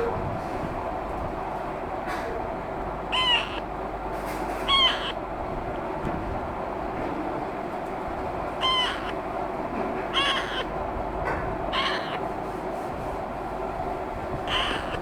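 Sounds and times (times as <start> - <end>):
parakeet chick squawking: 3.1 - 3.7, 4.5 - 5.2, 8.5 - 9.3, 10.0 - 10.8, 11.7 - 12.4, 14.4 - 15.0.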